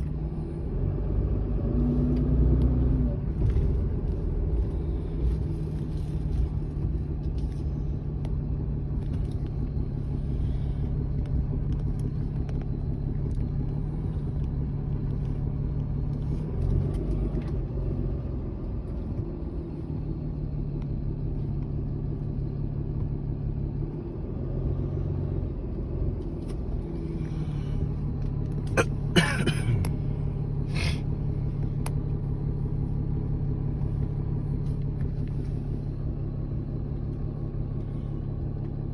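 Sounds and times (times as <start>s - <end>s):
motor vehicle engine rumbling: 0.0s - 38.9s.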